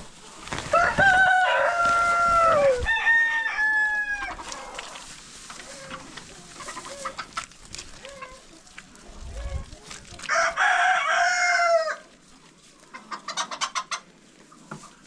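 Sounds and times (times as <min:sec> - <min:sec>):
rooster crowing: 0:00.7 - 0:04.4, 0:10.3 - 0:12.0
hen clucking: 0:04.1 - 0:10.3, 0:12.6 - 0:15.0.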